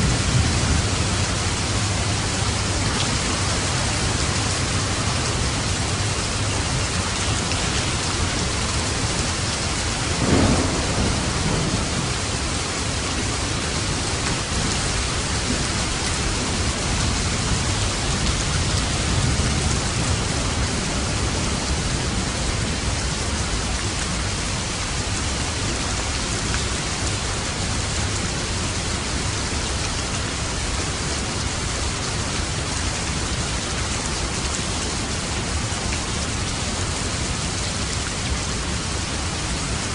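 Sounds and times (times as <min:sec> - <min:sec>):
thunder rumbling: 0:00.0 - 0:23.4
heavy rain falling: 0:00.0 - 0:39.9.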